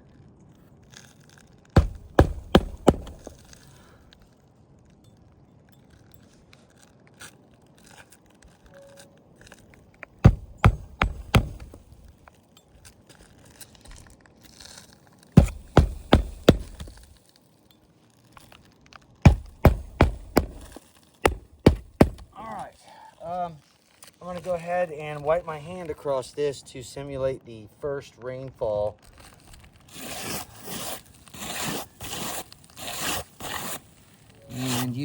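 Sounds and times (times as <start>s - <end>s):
shingles crackling and snapping: 0.9s - 4.2s, 9.3s - 22.5s, 23.2s - 24.7s, 28.9s - 35.0s.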